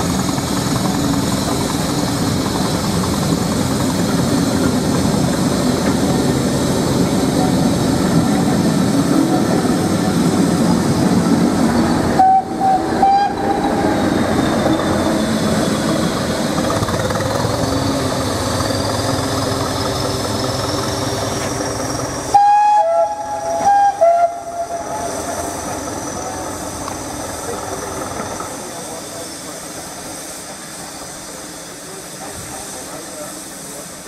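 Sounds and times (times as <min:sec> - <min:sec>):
train engine and wheels rumbling: 0:00.0 - 0:34.0
train horn blasts: 0:12.2 - 0:13.9, 0:22.3 - 0:25.1.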